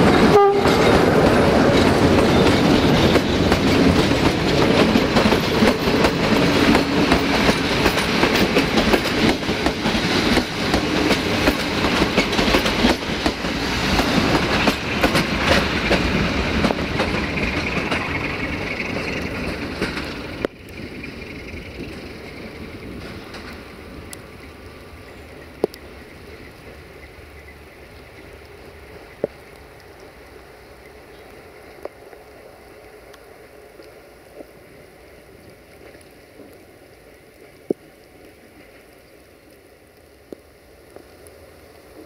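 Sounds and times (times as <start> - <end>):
passenger train rumbling on tracks: 0.0 - 29.8
rain hissing: 0.0 - 42.0.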